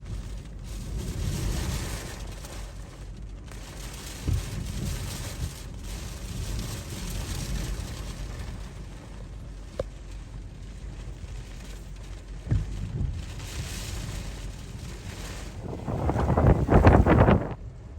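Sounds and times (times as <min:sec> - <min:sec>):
sharp wind buffet: 0:12.5 - 0:17.9
wind gusting against microphone: 0:12.5 - 0:17.9.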